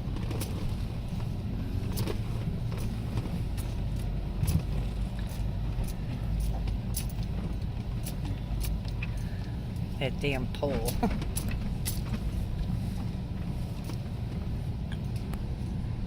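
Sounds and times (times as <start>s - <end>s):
engine and drivetrain rumble: 0.0s - 16.0s
sharp rattles and knocks: 0.1s - 9.9s, 10.6s - 15.3s.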